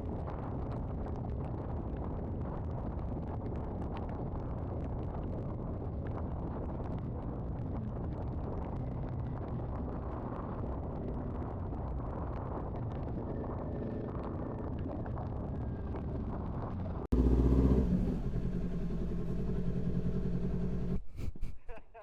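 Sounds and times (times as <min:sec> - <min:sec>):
wind and road noise: 0:00.0 - 0:21.5
motorcycle engine running: 0:17.1 - 0:21.0.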